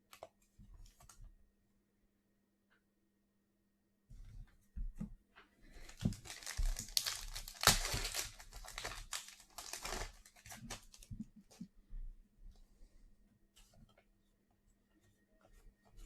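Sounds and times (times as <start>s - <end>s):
foil wrapper tearing and crinkling: 5.9s - 11.0s.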